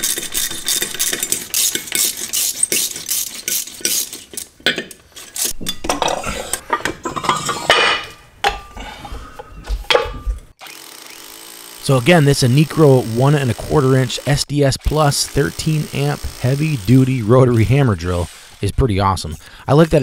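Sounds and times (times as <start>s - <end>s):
metallic clinking and rattling: 0.0s - 8.8s.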